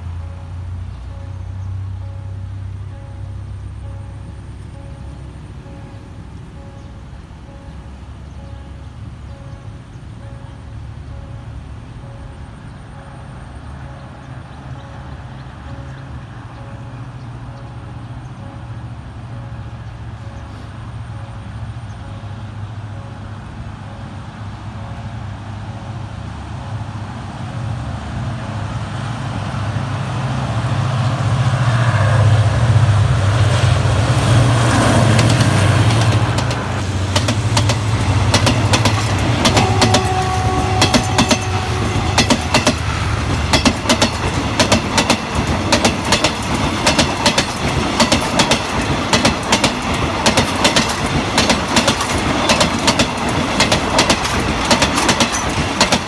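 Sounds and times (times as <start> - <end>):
locomotive engine drone: 0.0 - 56.0
wheels clicking over rail joints: 34.8 - 56.0.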